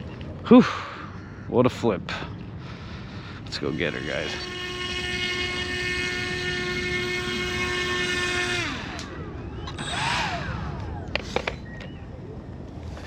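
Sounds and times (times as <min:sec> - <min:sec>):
train horn blast: 0:03.6 - 0:09.2.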